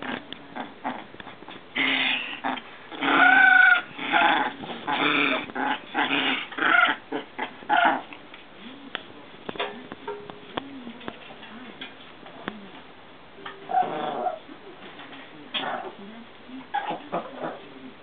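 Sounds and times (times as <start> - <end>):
puppies growling and barking: 0.0 - 8.2, 13.7 - 14.5.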